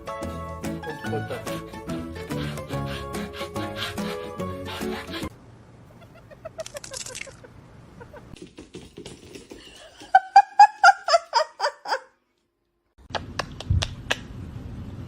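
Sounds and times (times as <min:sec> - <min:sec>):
high-pitched laughter: 0:00.8 - 0:01.8, 0:05.9 - 0:08.4.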